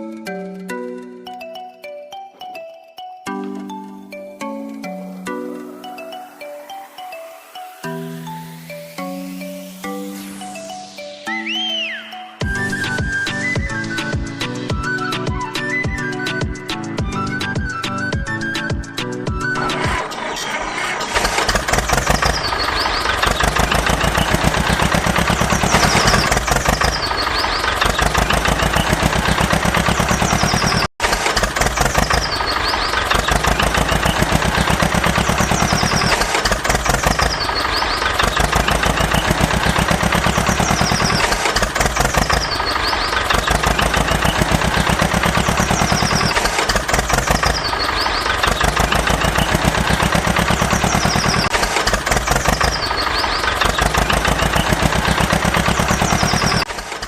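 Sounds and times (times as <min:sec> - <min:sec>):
tractor engine chugging: 0:11.9 - 0:57.0.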